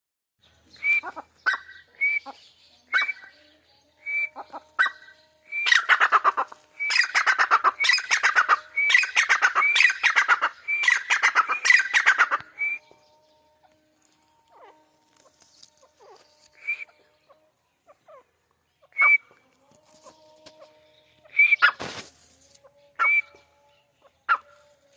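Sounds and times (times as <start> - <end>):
francolin calling: 0.7 - 13.4, 14.4 - 19.4, 22.8 - 24.6.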